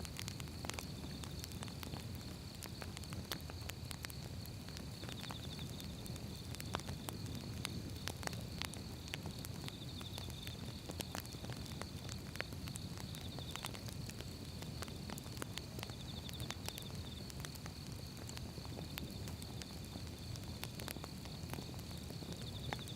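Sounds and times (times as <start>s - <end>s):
firewood crackling and popping: 0.0s - 22.9s
flames rumbling: 0.0s - 22.9s.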